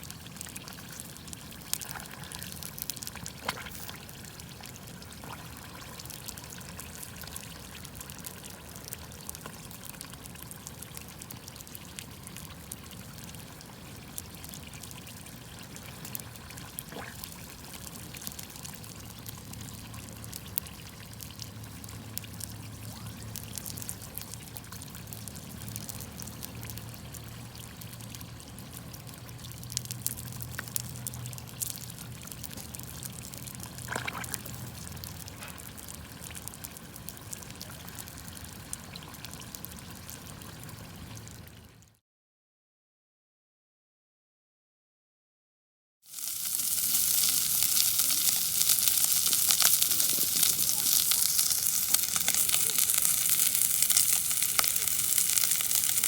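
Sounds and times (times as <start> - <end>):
campfire crackling and popping: 0.0 - 41.6, 46.1 - 56.0
watery hiss: 1.8 - 4.2, 46.1 - 56.0.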